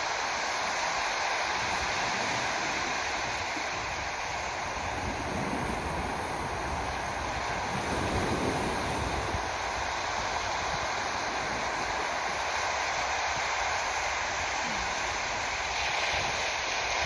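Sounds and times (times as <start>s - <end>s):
sea surf rushing: 0.0s - 17.0s
wind buffeting microphone: 1.6s - 12.5s.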